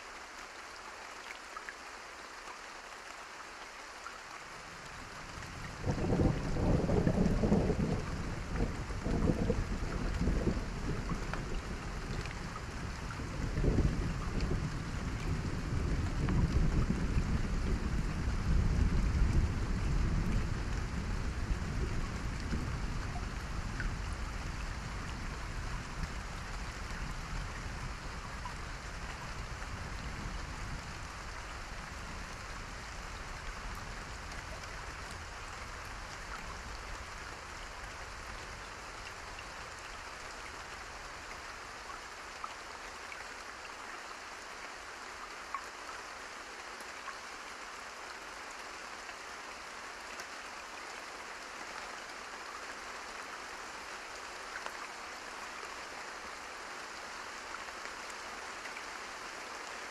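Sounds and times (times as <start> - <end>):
steady rain: 0.0 - 59.9
low rumble of thunder: 5.0 - 40.6.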